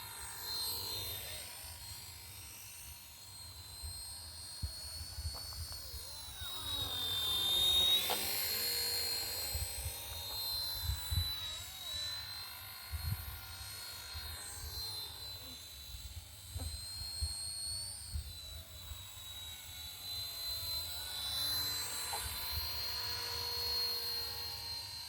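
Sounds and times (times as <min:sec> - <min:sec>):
rc helicopter rotor whine: 0:00.0 - 0:25.0.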